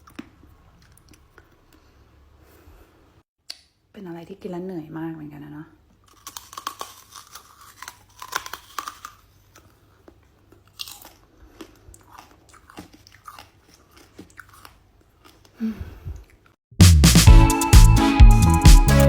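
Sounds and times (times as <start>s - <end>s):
person chewing crunchy food: 0.0s - 2.0s, 6.0s - 15.6s.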